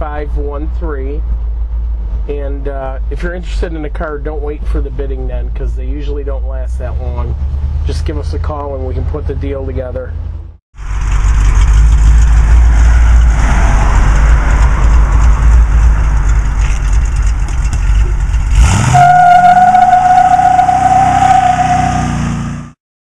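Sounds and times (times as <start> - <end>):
engine at full throttle: 10.8 - 22.8
high tyre squeal: 12.4 - 22.8.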